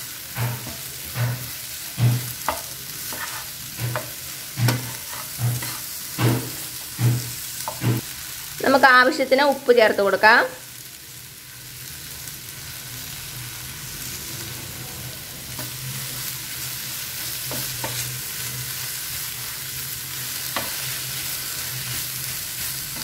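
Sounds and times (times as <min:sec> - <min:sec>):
okra sizzling in pan: 0:00.0 - 0:23.0
spatula tapping pan: 0:00.3 - 0:08.0.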